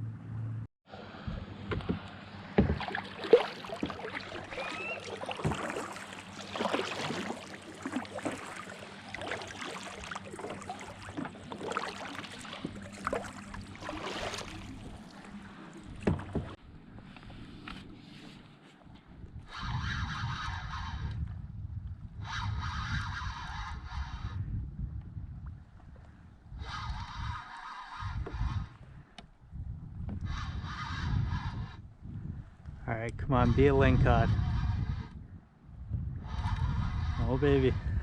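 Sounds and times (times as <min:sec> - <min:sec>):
water splashing around a kayak: 0:00.9 - 0:18.4
knocks on kayak: 0:02.6 - 0:03.1, 0:16.0 - 0:16.6.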